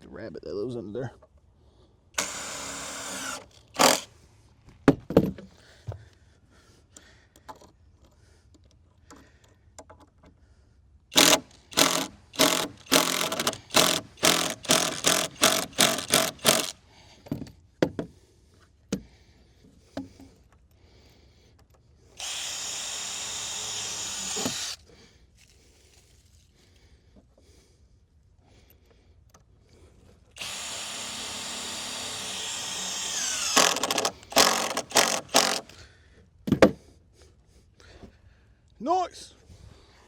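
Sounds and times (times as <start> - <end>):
power drill driving a screw: 2.2 - 4.1, 11.1 - 16.8, 22.2 - 24.8, 30.4 - 35.8.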